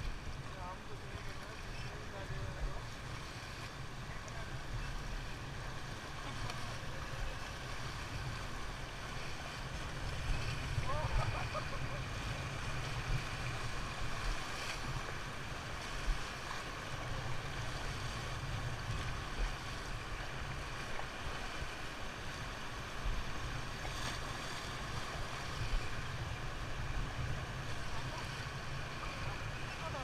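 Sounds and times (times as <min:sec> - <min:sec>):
river water rushing: 0:00.0 - 0:30.0
wind rumbling on microphone: 0:00.0 - 0:30.0.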